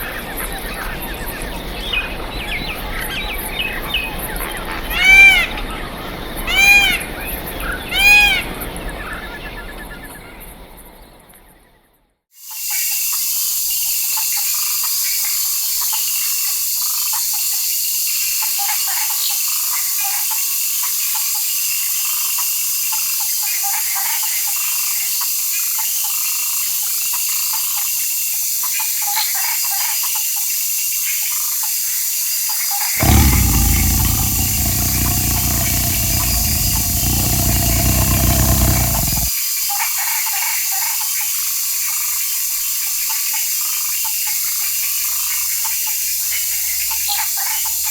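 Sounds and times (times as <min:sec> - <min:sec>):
loud low rumble: 0:33.0 - 0:39.3.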